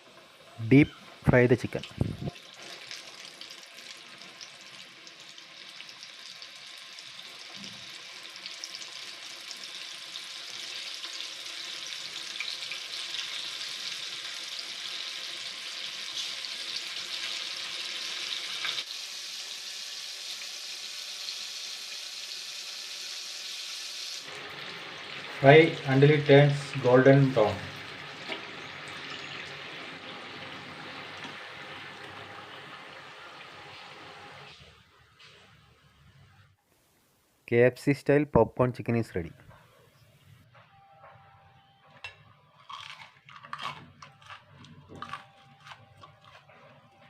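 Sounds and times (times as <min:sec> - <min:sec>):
chicken deep-frying in hot oil: 0:00.0 - 0:34.8.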